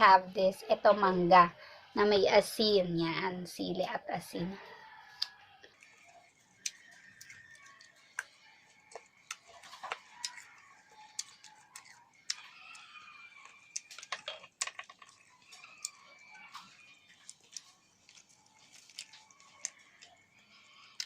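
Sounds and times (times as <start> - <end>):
faint wavering calls: 4.9 - 14.2
person chewing crunchy fruit: 5.1 - 21.0.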